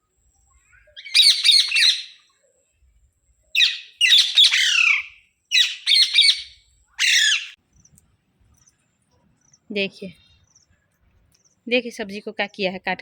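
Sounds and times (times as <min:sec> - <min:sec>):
parakeet squawking: 0:01.0 - 0:02.2, 0:03.6 - 0:07.6.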